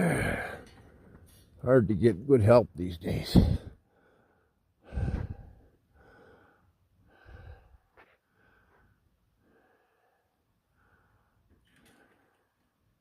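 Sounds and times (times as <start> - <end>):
slow breathing: 3.4 - 12.8.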